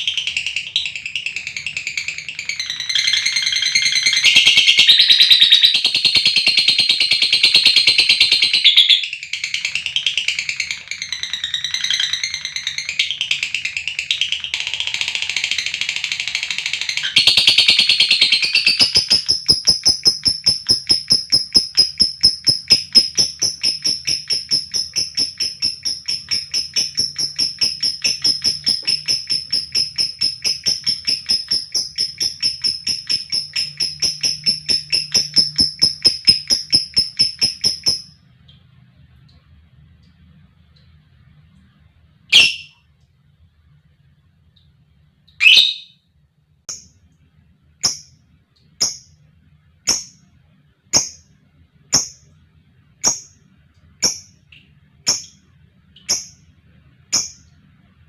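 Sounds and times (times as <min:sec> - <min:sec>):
lovebird chattering: 0:00.0 - 0:38.1, 0:42.3 - 0:42.8, 0:47.8 - 0:48.2, 0:49.9 - 0:50.2, 0:53.0 - 0:53.4, 0:54.0 - 0:54.4, 0:55.1 - 0:55.4, 0:56.0 - 0:56.4, 0:57.1 - 0:57.4
lovebird shrill trill: 0:01.4 - 0:38.2, 0:42.3 - 0:42.8, 0:45.4 - 0:46.0.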